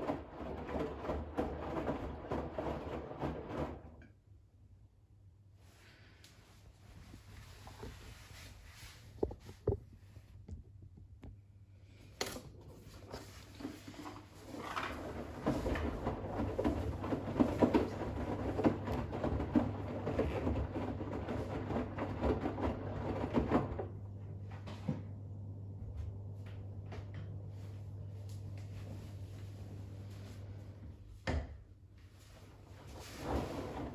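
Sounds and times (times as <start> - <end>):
washing machine drum tumbling: 0.0 - 4.0, 12.8 - 25.2, 32.8 - 33.9
small irregular thuds: 9.1 - 11.4.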